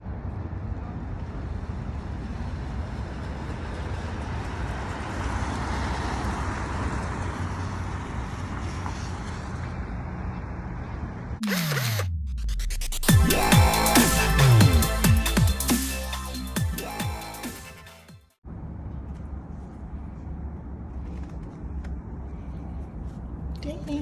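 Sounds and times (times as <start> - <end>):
street traffic rumbling: 0.0 - 11.4, 18.4 - 24.0
vehicle passing: 0.0 - 11.4.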